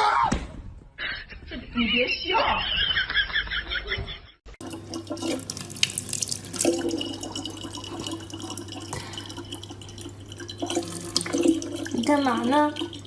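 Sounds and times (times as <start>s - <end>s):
low steady hum: 4.6s - 13.0s
tap water running and splashing: 4.6s - 13.0s.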